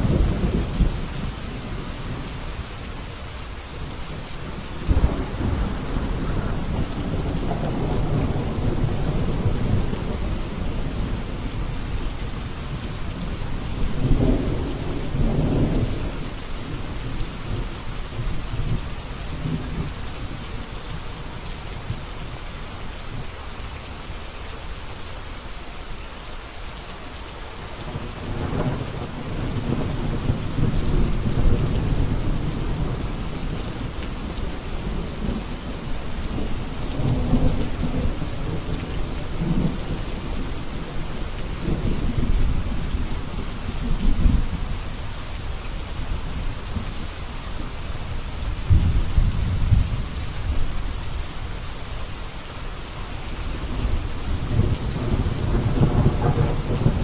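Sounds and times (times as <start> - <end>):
heavy rain: 0.0 - 57.0
thunder rumbling: 4.4 - 17.6, 28.1 - 44.7, 48.6 - 50.8, 53.4 - 57.0.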